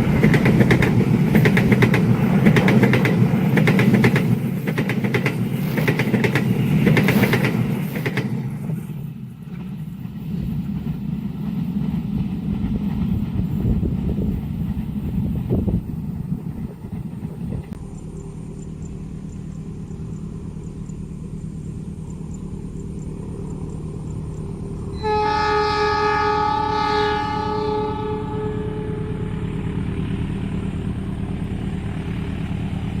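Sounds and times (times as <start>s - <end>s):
diesel locomotive rumbling: 0.0s - 33.0s
train horn blast: 24.9s - 29.8s.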